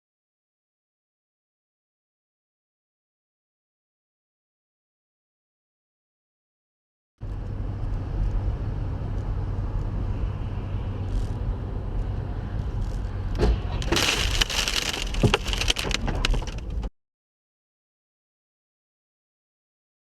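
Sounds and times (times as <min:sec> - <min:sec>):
car engine and road noise: 0:07.3 - 0:16.9
car collision impacts crunching: 0:13.8 - 0:16.6.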